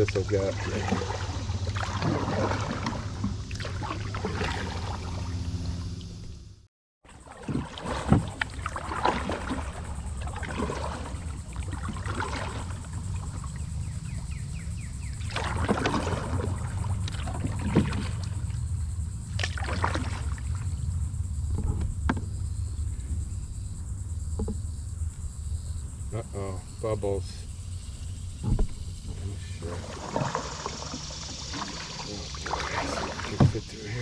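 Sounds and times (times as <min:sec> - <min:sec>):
paddle splashing in water: 0:00.0 - 0:05.9, 0:07.0 - 0:25.2, 0:27.9 - 0:34.0
steady low rumble: 0:20.3 - 0:29.8.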